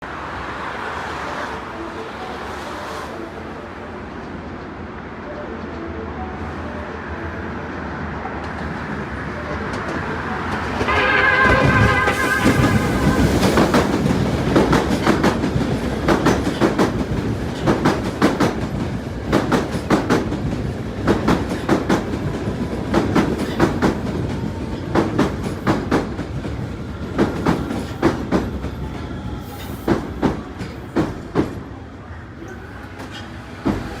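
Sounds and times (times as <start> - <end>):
electric train running past: 0.0 - 34.0
train wheels clacking over rail joints: 9.5 - 31.7, 33.0 - 34.0.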